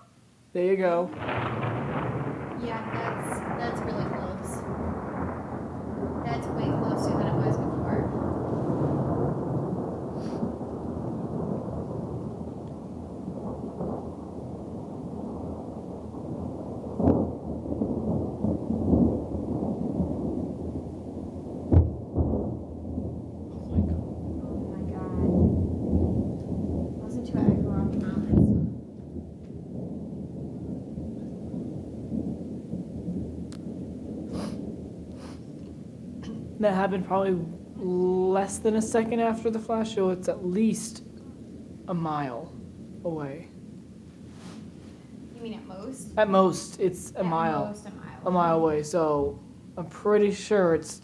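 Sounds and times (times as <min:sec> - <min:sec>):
thunder crack: 0:00.0 - 0:51.0
thunder rumbling: 0:00.0 - 0:51.0
breaths or sniffs: 0:34.3 - 0:35.6.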